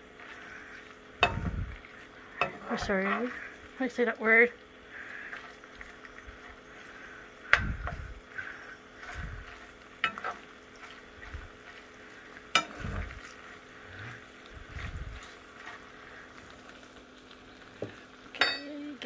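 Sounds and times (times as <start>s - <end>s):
chicken sizzling in oil: 0.0s - 19.0s
metal spoon clinking on pan: 10.0s - 10.4s, 18.4s - 18.8s.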